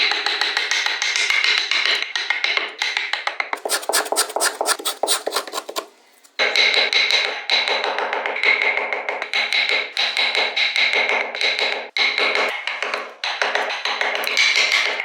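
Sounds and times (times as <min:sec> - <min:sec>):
carving tools tapping wood: 0:00.0 - 0:15.0.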